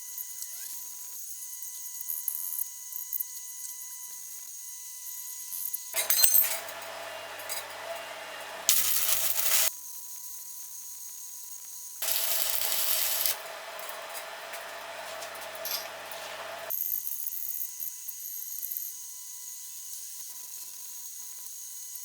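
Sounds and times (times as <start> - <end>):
welding machine hum: 6.0 - 9.7, 12.0 - 16.7
welding arc crackling and hissing: 6.6 - 9.7, 12.0 - 16.8.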